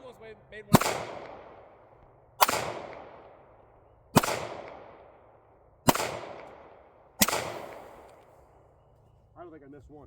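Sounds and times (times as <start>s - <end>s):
gunshots with rolling echo: 0.0s - 8.7s.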